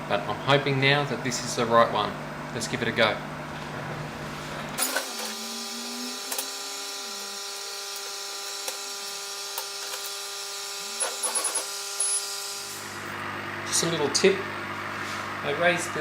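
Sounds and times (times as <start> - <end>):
gantry motors whining: 4.8 - 13.2
laser cutter machine hum: 4.8 - 16.0.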